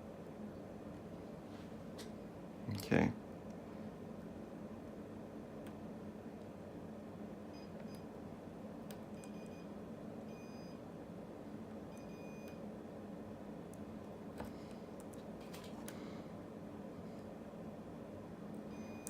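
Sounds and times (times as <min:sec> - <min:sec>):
low steady hum: 0:00.0 - 0:19.0
multimeter beeping: 0:09.2 - 0:09.7, 0:11.9 - 0:12.6, 0:18.7 - 0:19.0.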